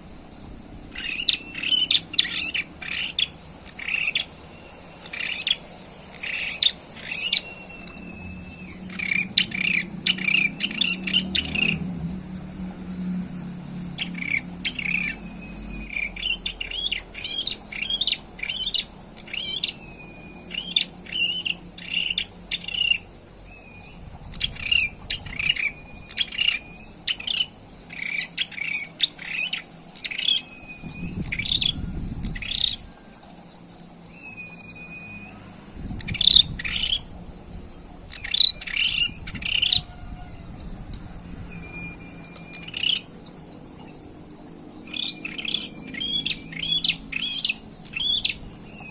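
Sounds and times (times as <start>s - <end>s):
low background rumble: 0.0s - 48.9s
bird chirping and whistling: 0.9s - 4.3s, 5.0s - 11.8s, 14.0s - 32.8s, 34.2s - 35.4s, 36.0s - 39.9s, 41.4s - 43.4s, 44.9s - 48.9s.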